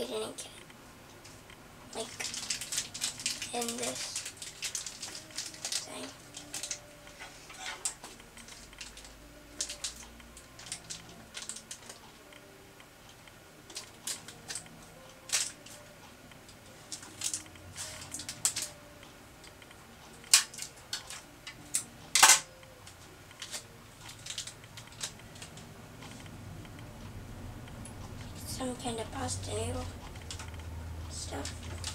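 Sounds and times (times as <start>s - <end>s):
plastic wrapper crinkling: 2.0s - 6.9s, 7.5s - 12.0s, 23.4s - 25.6s.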